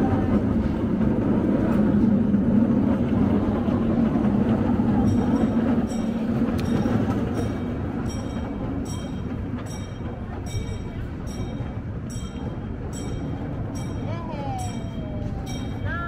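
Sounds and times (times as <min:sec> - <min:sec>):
small train rumbling on track: 0:00.0 - 0:16.0
rhythmic metallic ring: 0:04.8 - 0:16.0.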